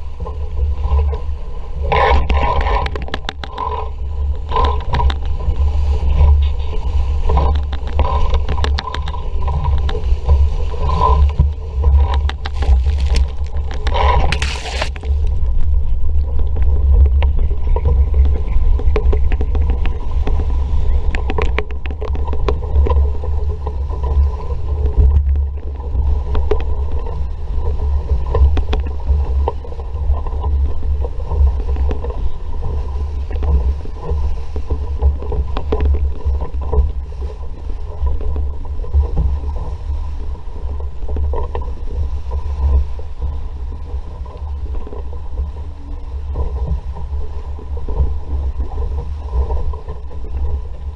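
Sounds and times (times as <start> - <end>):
water rushing along hull: 0.0 - 50.9
wind buffeting microphone: 0.0 - 50.9
small splashes and knocks: 12.0 - 15.2.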